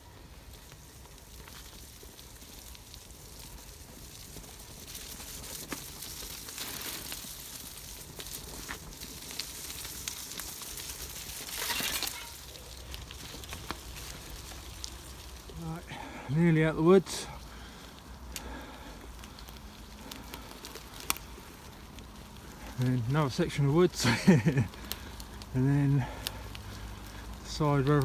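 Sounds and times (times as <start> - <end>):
bike tyres crunching on gravel: 0.0 - 28.0
small clicks and crackles: 0.0 - 28.0.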